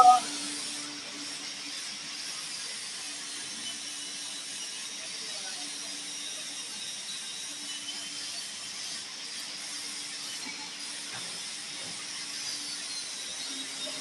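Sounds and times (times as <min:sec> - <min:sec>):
faint high-pitched tones: 0:00.0 - 0:00.2.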